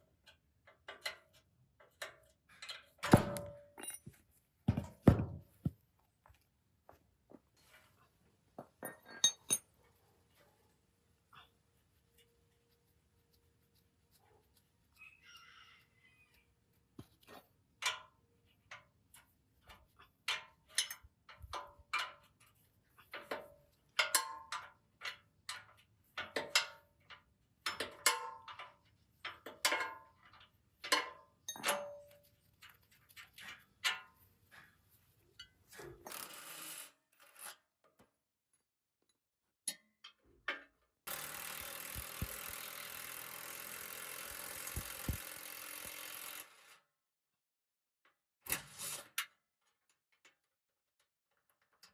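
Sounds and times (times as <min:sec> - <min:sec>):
metal tools clinking on workbench: 0:02.7 - 0:04.2, 0:08.8 - 0:09.7.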